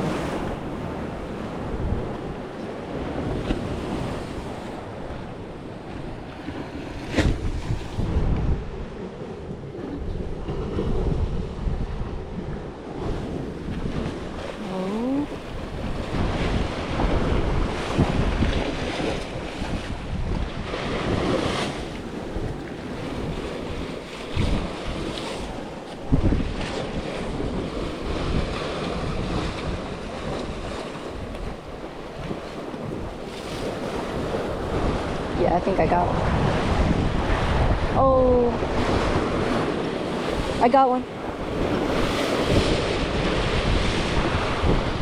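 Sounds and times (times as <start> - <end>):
sea waves washing: 0.0 - 45.0
wind buffeting microphone: 0.0 - 45.0.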